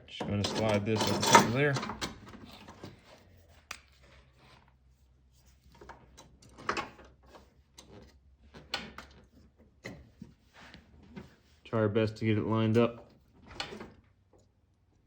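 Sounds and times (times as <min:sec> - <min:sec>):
metal clicks and scrapes: 0:00.2 - 0:04.7.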